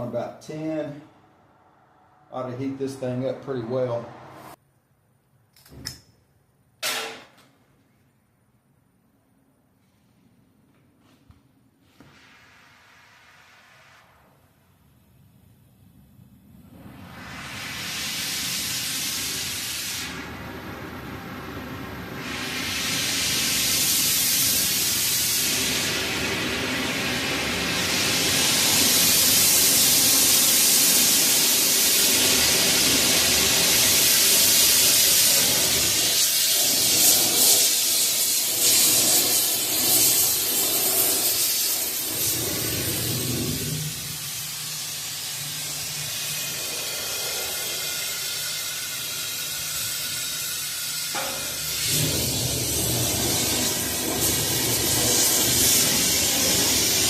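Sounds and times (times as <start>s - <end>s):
gas torch hissing: 16.6s - 57.0s.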